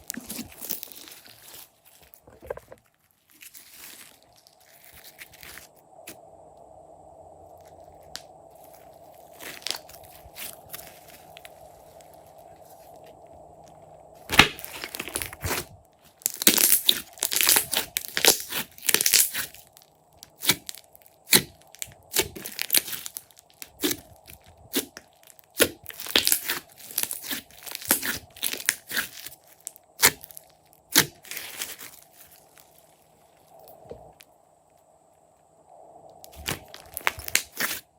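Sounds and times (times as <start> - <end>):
slime crackling and popping: 9.4 - 11.5, 14.3 - 32.9, 36.3 - 37.8.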